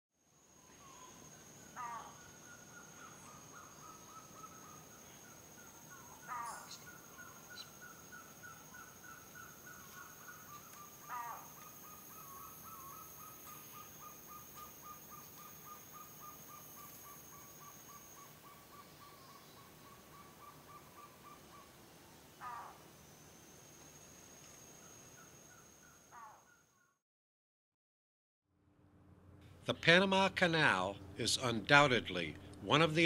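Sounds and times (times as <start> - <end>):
harsh animal calls: 1.8 - 2.2, 6.0 - 6.8, 11.0 - 14.4, 22.4 - 22.8.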